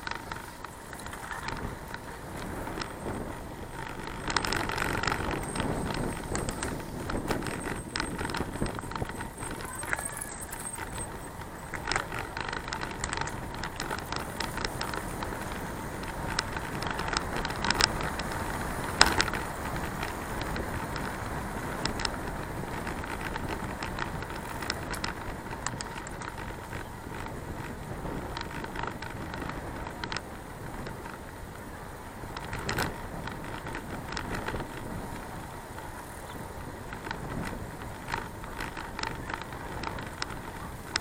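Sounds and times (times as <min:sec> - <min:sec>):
rattling clicks: 0:00.0 - 0:21.2, 0:21.8 - 0:31.2
bicycle tyre and wind rush: 0:00.0 - 0:41.0.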